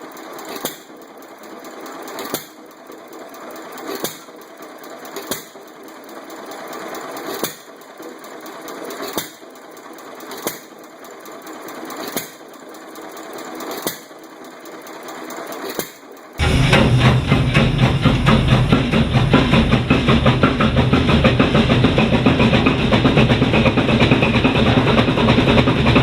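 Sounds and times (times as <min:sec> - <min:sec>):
engine mechanical clatter: 0:00.0 - 0:26.0
stationary engine bangs: 0:16.4 - 0:26.0.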